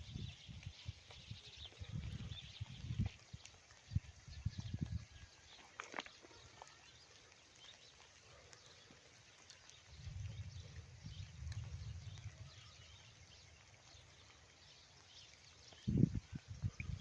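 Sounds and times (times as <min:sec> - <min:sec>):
faint birds chirping: 0:00.0 - 0:17.0
low rumble: 0:09.9 - 0:14.4.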